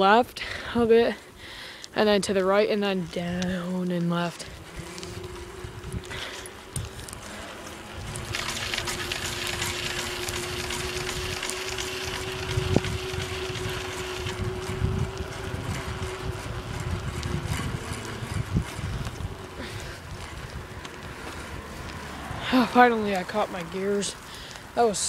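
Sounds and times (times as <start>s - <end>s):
steady hum: 2.8s - 24.7s
wind rushing over microphone: 4.3s - 23.0s.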